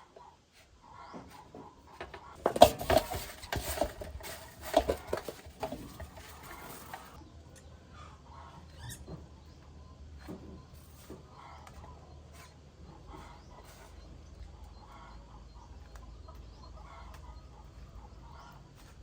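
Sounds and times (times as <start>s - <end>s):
mice scrabbling in a trap: 1.0s - 7.2s.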